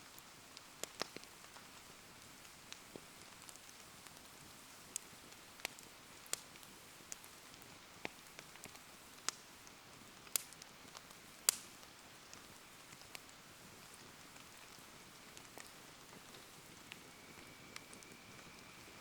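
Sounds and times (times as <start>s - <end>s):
wood fire crackling: 0.0s - 19.0s
rain falling: 10.2s - 19.0s.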